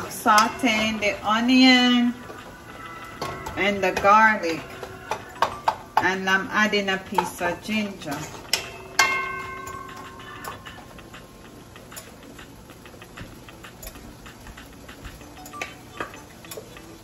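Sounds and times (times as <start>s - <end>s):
metal utensil ringing against pot: 0.0s - 2.2s, 7.2s - 10.8s
food frying in oil: 0.0s - 17.0s.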